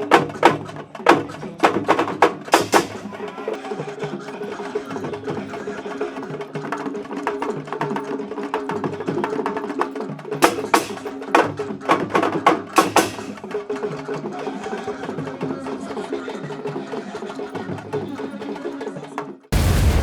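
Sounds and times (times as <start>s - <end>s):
drums slapped in fast rhythm: 0.0s - 14.3s, 19.5s - 20.0s.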